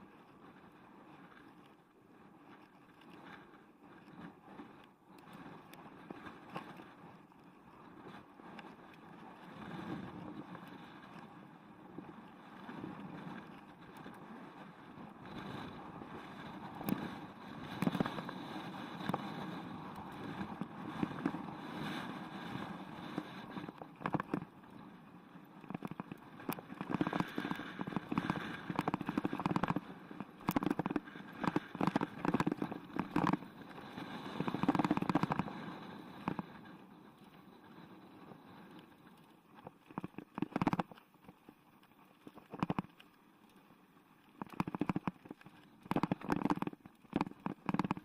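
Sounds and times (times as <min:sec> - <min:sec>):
bike knocking and rattling: 0:26.7 - 0:29.8, 0:40.0 - 0:40.9.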